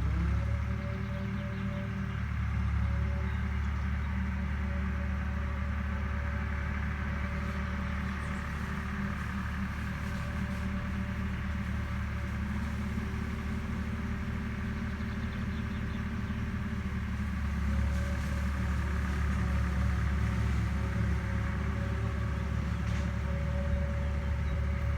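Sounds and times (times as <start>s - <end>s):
farm machine engine droning: 0.0s - 24.9s.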